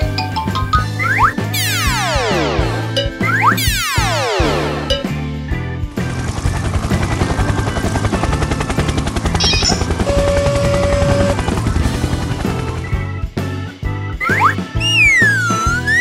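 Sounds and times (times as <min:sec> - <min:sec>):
background music: 0:00.0 - 0:16.0
rapid rattling machine effect: 0:05.9 - 0:13.1.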